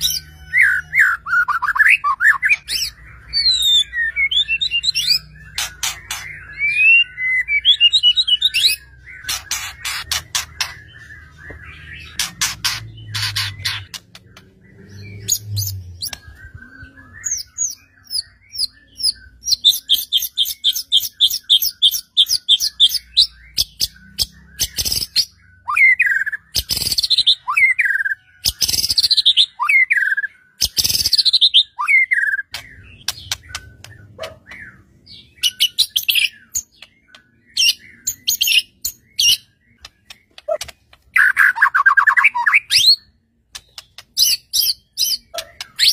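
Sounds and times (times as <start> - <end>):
bird singing varied song: 0.0 - 45.9.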